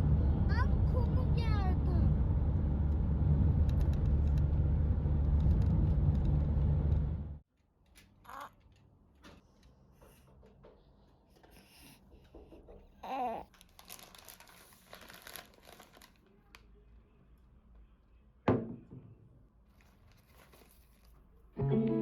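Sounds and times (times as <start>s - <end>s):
packaging crinkling and rustling: 13.5s - 16.3s, 19.7s - 21.2s.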